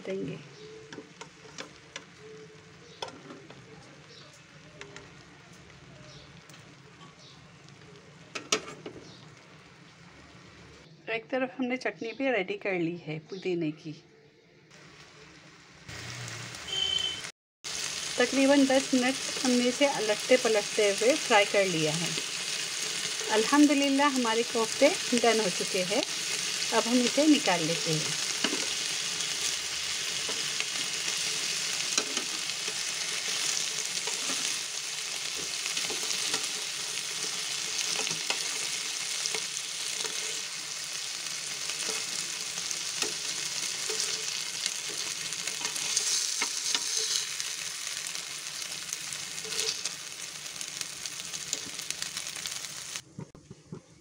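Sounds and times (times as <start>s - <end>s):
meat sizzling in hot oil: 14.8s - 53.0s.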